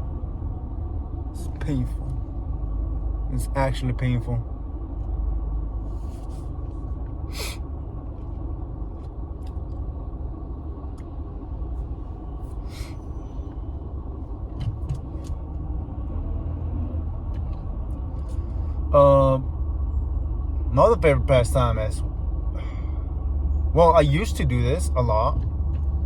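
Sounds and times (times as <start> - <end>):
car cabin road rumble: 0.0 - 26.0
person breathing: 7.3 - 7.6, 12.6 - 13.0, 22.5 - 23.1.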